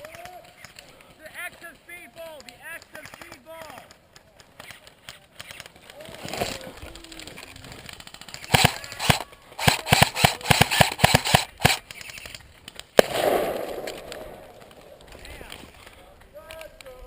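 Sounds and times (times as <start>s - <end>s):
rustling: 4.1s - 10.4s, 11.2s - 16.3s
airsoft rifle shots: 8.3s - 12.3s, 13.0s - 15.7s.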